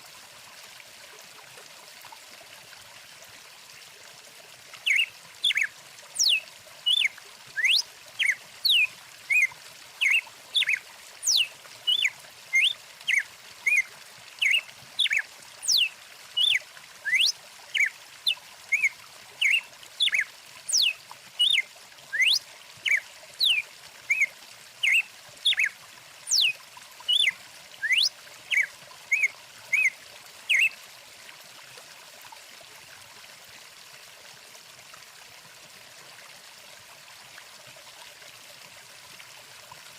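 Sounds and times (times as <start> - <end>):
flowing stream: 0.0 - 39.9
bird whistled chirps: 4.9 - 13.8, 14.4 - 17.9, 18.7 - 25.7, 26.3 - 26.5, 27.1 - 29.9.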